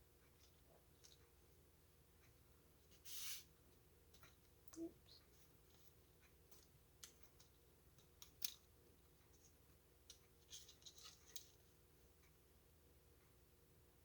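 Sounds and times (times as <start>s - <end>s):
crisp clicks of craft supplies: 5.7s - 11.7s.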